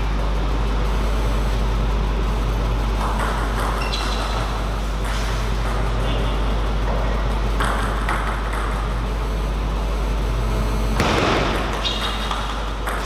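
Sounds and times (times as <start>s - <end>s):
low hall hum: 0.0s - 13.0s
ping pong ball pings and knocks: 2.9s - 9.0s, 11.0s - 13.0s.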